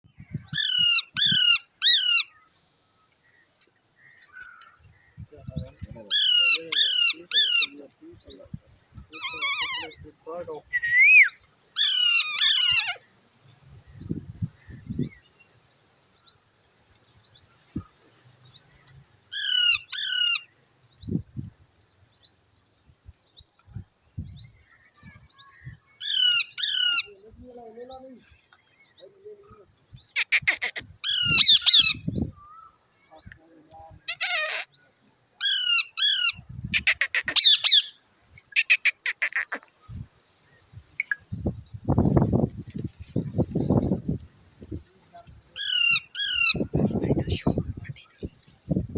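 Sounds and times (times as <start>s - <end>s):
high-pitched insect drone: 0.1s - 48.9s
parrots screeching: 0.6s - 2.3s, 6.1s - 7.7s, 9.2s - 10.0s, 11.1s - 13.0s, 19.4s - 20.4s, 26.0s - 27.1s, 30.2s - 32.0s, 34.1s - 34.7s, 35.4s - 38.0s, 38.6s - 39.6s, 45.6s - 46.6s.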